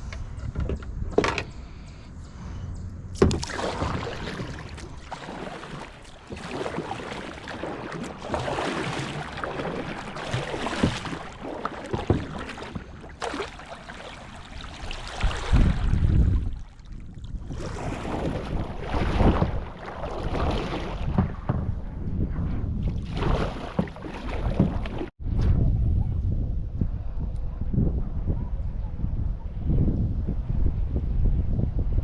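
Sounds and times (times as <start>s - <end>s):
water splashing against kayak: 3.2s - 21.8s, 22.8s - 25.1s.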